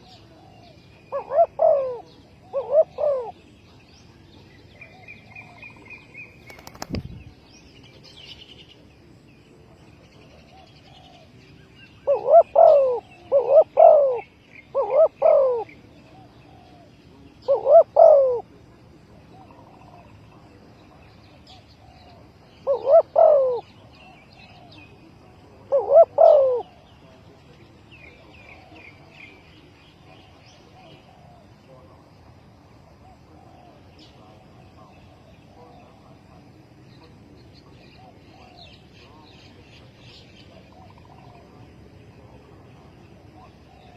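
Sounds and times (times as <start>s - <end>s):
dove cooing: 0.0s - 3.5s, 12.0s - 18.6s, 21.6s - 27.2s, 30.6s - 32.0s, 40.5s - 41.6s, 43.3s - 43.9s
small birds chirping: 0.0s - 43.9s.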